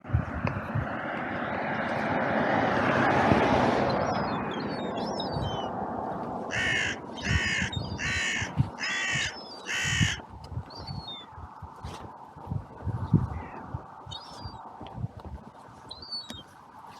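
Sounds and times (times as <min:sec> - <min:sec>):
broad rushing noise: 0:00.0 - 0:16.9
crow cawing: 0:06.5 - 0:10.3.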